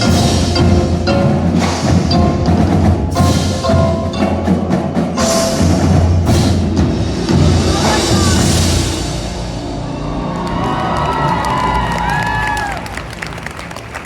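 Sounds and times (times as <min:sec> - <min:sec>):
mallet keyboard notes: 0:00.0 - 0:10.0
drums and struck percussion: 0:00.0 - 0:14.0.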